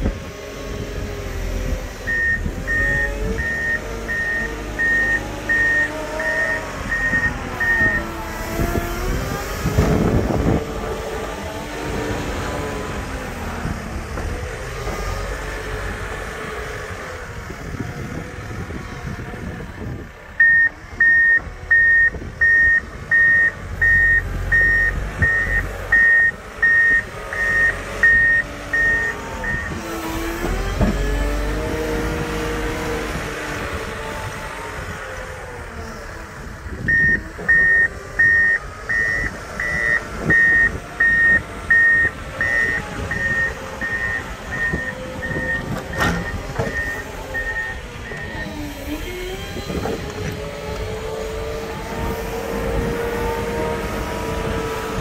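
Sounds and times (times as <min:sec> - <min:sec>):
reversing alarm beeping: 0:02.1 - 0:08.1, 0:20.4 - 0:29.8, 0:36.9 - 0:48.6.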